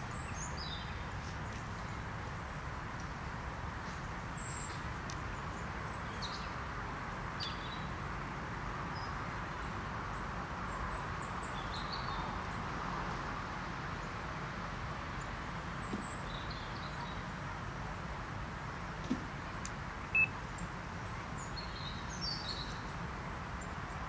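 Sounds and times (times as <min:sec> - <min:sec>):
small birds chirping: 0:00.0 - 0:07.9, 0:15.2 - 0:17.4, 0:18.0 - 0:24.0.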